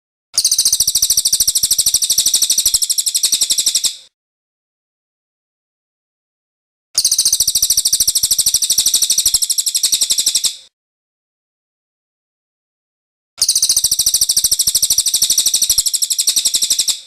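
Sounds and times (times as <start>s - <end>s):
bird trilling: 13.4s - 17.0s.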